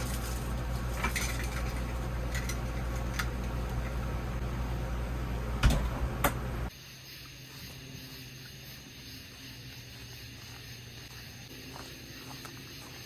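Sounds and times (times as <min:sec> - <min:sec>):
steady low hum: 0:00.0 - 0:13.0
door thump: 0:05.6 - 0:06.4.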